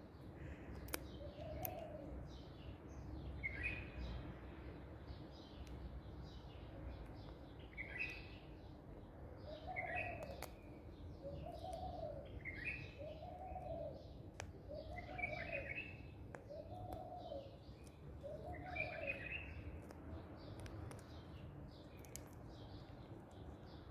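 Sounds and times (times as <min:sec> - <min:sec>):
bird cooing: 0:01.2 - 0:02.1, 0:09.4 - 0:10.4, 0:11.2 - 0:14.1, 0:14.7 - 0:17.6, 0:18.2 - 0:19.4
bird chirps: 0:05.4 - 0:08.8, 0:09.4 - 0:23.9.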